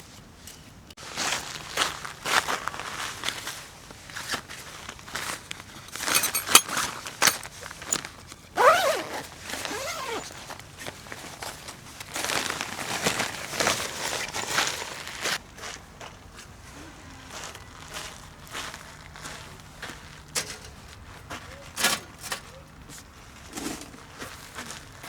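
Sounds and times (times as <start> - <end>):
gear rustling and crinkling: 0.4 - 16.7.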